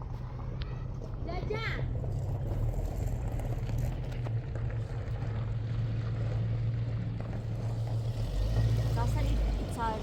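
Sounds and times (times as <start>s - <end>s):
engine running with low rumble: 0.0s - 10.0s.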